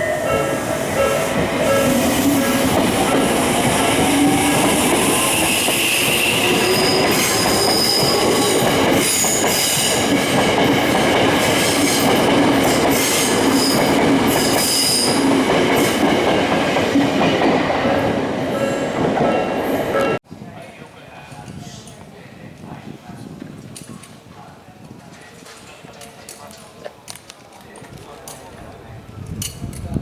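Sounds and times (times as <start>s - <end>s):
high wheel squeal: 0.0s - 9.8s
train rolling past: 0.0s - 20.2s.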